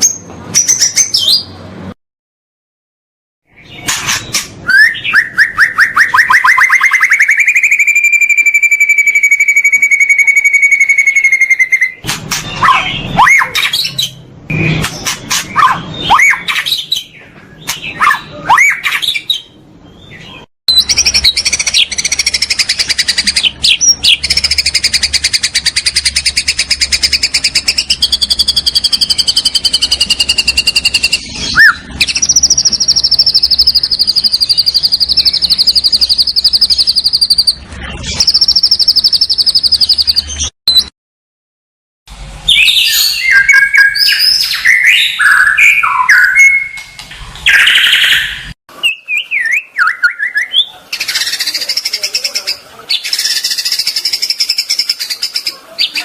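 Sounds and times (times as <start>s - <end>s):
songbird whistled phrases: 4.6s - 12.0s, 15.6s - 16.8s, 28.0s - 37.6s, 47.5s - 51.6s.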